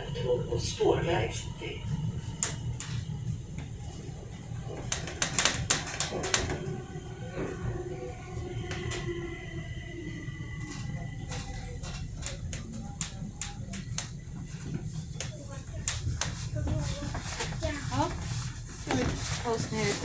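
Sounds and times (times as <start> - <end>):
metro train rumble: 0.0 - 20.0
clicks and knocks: 2.3 - 3.2, 4.7 - 6.8, 10.7 - 16.4.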